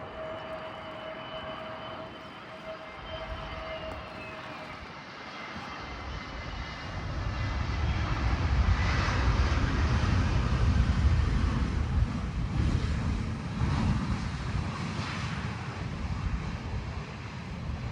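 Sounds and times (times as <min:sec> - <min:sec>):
airliner engines: 0:00.0 - 0:17.9
wind rumbling on microphone: 0:00.0 - 0:17.9.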